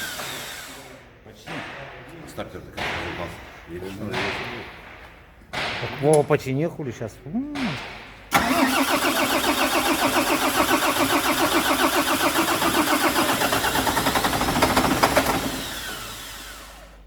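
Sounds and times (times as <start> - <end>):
diesel engine cranking on starter: 8.3 - 17.0.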